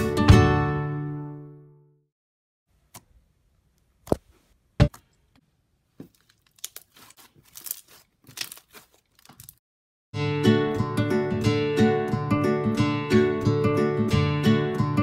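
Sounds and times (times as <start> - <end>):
crackling tearing sounds from hands: 6.1 - 9.6.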